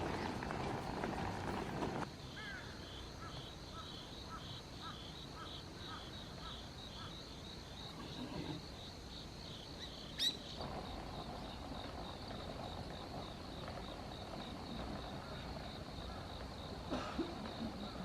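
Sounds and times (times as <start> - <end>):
crickets trilling: 0.0 - 18.0
bird chirp: 9.8 - 10.6.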